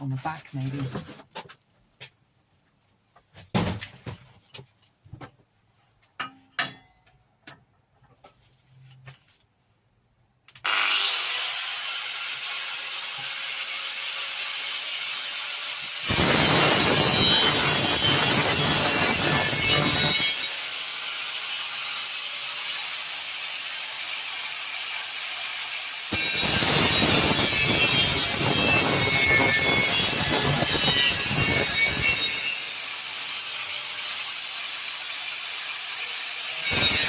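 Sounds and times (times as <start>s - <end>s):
angle grinder cutting metal: 10.6s - 37.0s.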